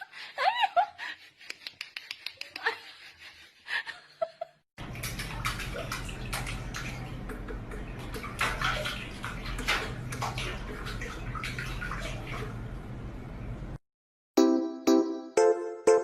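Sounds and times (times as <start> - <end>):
water splashing in a bathtub: 4.8 - 13.6.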